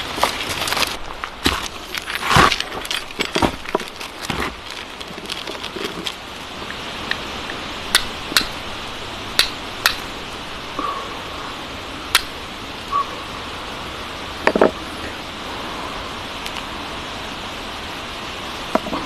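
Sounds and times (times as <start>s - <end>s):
steady rain: 0.0s - 19.0s
sharp drip clicks: 9.4s - 10.0s.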